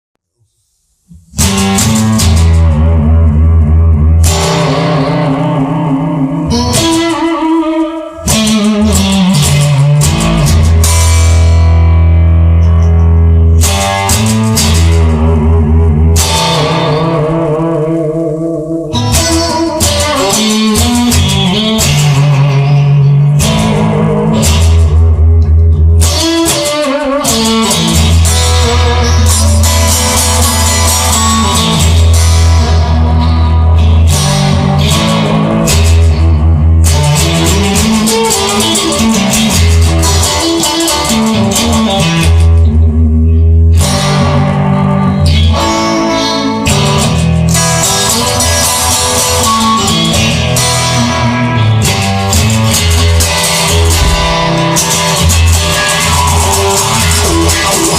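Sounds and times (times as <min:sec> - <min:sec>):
instrumental rock music: 0:01.0 - 0:57.9
bass line: 0:01.1 - 0:26.6, 0:27.2 - 0:57.9.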